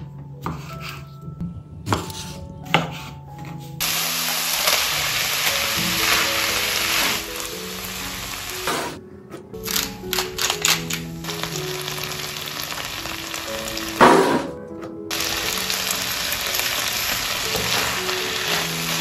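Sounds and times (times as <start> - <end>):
background music: 0.0 - 19.0
food sizzling in a pan: 3.8 - 8.9, 11.2 - 14.4, 15.1 - 19.0.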